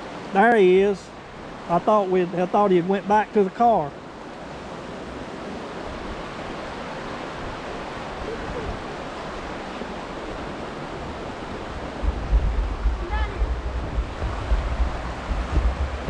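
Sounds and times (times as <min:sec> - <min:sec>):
creek water flowing: 0:00.0 - 0:16.0
wind buffeting microphone: 0:04.0 - 0:16.0.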